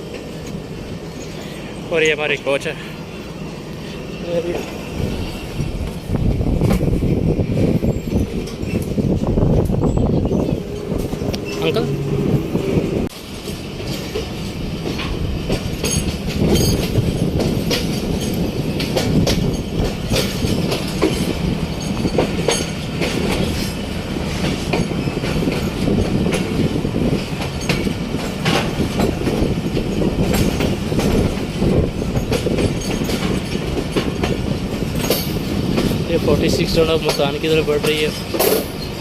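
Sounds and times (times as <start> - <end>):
train coaches rumbling on track: 0.0 - 39.0
wheels clicking over rail joints: 13.3 - 39.0.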